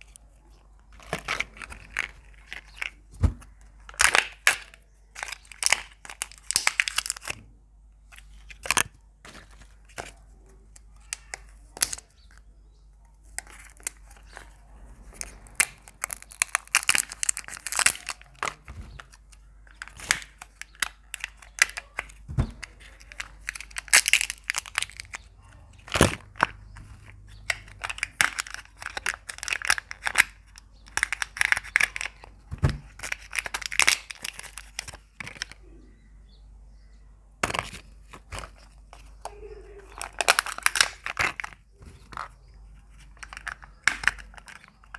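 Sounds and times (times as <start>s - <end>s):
eggs cracking open: 0.0s - 44.9s
wrappers crinkling and tearing: 0.9s - 7.4s, 13.2s - 35.6s, 37.5s - 44.9s.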